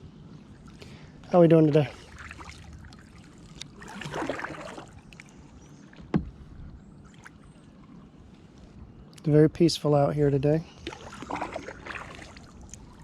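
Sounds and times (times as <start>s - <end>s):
kayak paddle strokes in water: 1.9s - 8.0s, 10.8s - 13.0s.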